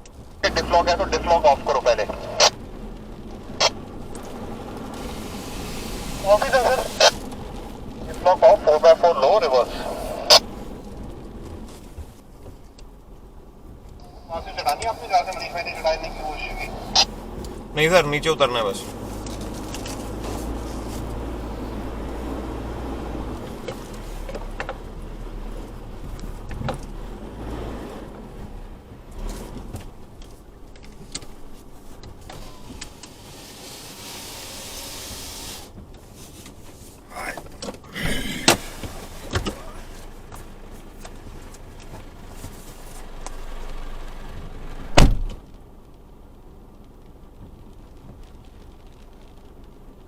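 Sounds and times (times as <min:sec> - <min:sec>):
truck engine rumble: 0:00.0 - 0:50.0
hiss: 0:05.0 - 0:07.1, 0:32.4 - 0:35.8
knocks and clunks from vehicle body: 0:26.0 - 0:26.9, 0:37.4 - 0:42.6, 0:44.9 - 0:45.5.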